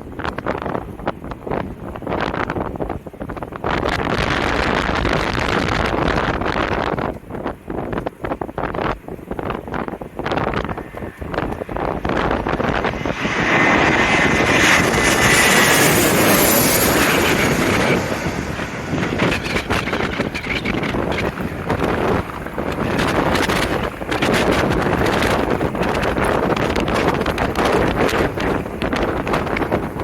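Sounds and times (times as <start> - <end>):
airliner engines passing overhead: 0.0 - 30.0
wind buffeting microphone: 0.0 - 30.0.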